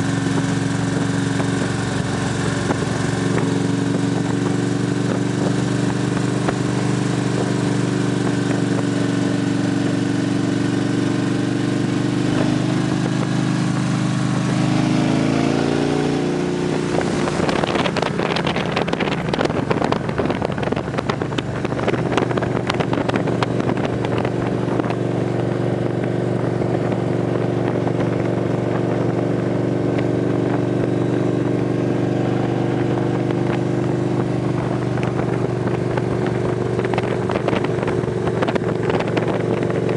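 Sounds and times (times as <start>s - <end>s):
motorcycle engines accelerating: 0.0s - 39.9s
wind buffeting: 12.3s - 39.9s.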